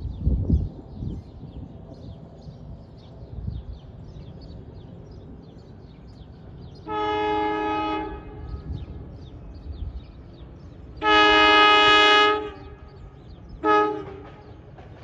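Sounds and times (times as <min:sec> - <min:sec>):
train horn blast: 0:06.8 - 0:08.9, 0:11.0 - 0:14.7.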